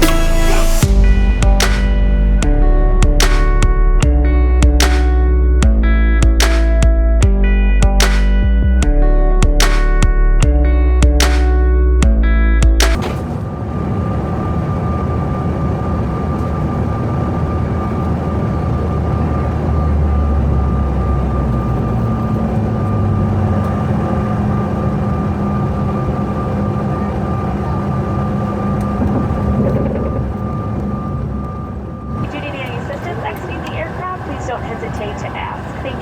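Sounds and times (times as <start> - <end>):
deep hum: 0.0 - 16.2
high whine: 0.0 - 36.0
jet cabin engine rush: 12.9 - 36.0.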